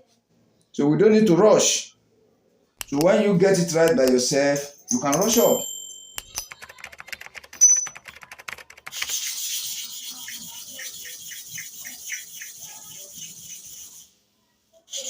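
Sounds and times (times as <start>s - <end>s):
blade scraping back and forth: 9.0s - 14.1s.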